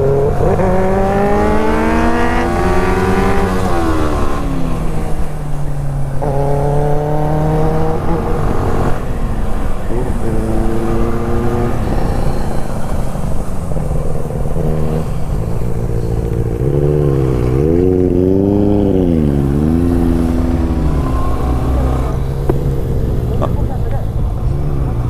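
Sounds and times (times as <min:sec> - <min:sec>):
motorcycle engine and exhaust: 0:00.0 - 0:25.0.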